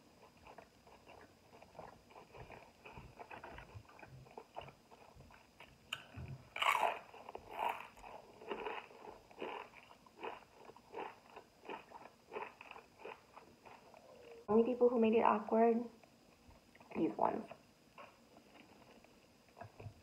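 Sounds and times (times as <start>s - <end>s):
person chewing: 0.0s - 14.4s
person biting crisp chip: 6.6s - 13.2s.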